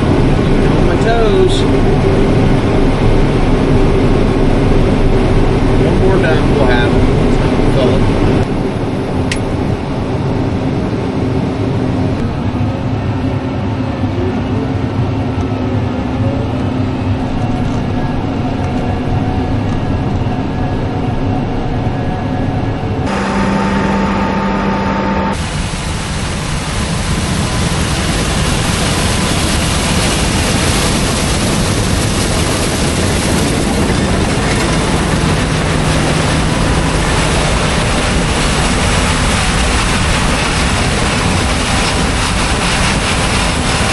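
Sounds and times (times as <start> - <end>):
combine harvester engine drone: 0.0 - 43.9
rushing machine noise: 22.8 - 43.9.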